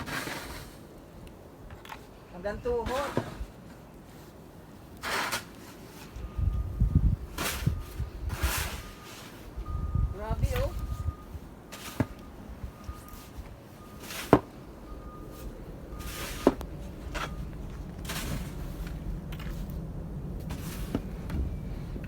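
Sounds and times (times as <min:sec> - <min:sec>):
snow shovel scraping snow: 0:00.0 - 0:00.9, 0:02.9 - 0:04.4, 0:05.0 - 0:06.2, 0:07.4 - 0:09.5, 0:11.7 - 0:12.2, 0:13.1 - 0:19.8, 0:20.5 - 0:21.6
shovel knocks: 0:16.0 - 0:19.6.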